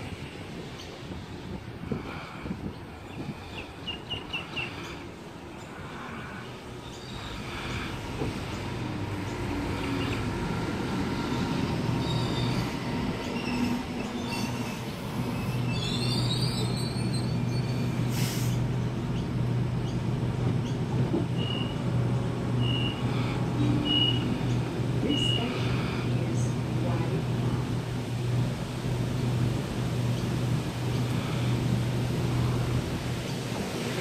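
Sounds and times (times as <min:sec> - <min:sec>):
train brakes squealing: 0:11.3 - 0:18.6, 0:22.6 - 0:24.4
air hissing: 0:12.6 - 0:18.8.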